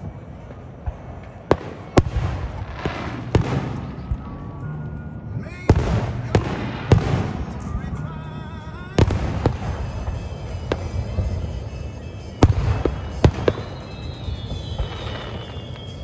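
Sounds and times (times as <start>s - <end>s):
firework shells booming: 0.0s - 16.0s.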